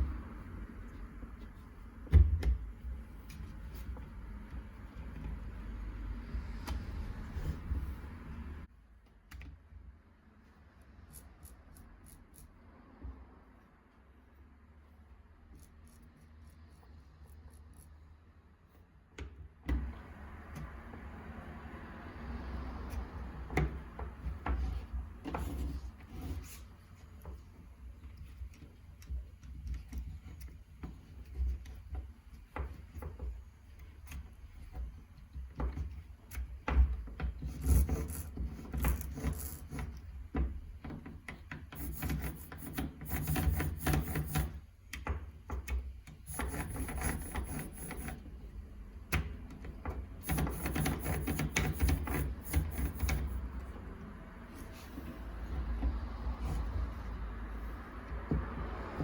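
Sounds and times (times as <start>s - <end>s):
scraping and rubbing strokes: 37.4s - 40.2s, 41.6s - 44.7s, 46.2s - 48.5s, 50.1s - 57.9s.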